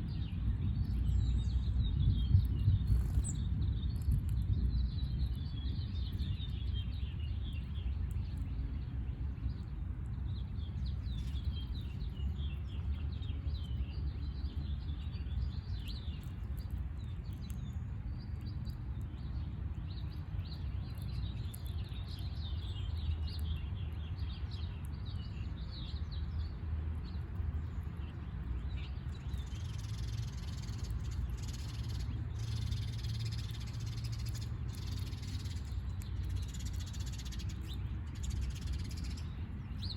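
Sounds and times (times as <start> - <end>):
small birds chirping: 0.0 - 39.9
steady low rumble: 0.0 - 39.9.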